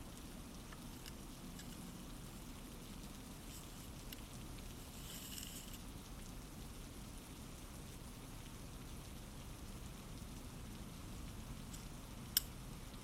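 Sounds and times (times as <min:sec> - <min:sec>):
faint rain: 0:00.0 - 0:13.0
high rustle: 0:04.7 - 0:05.8
light drop ticks: 0:11.7 - 0:12.6.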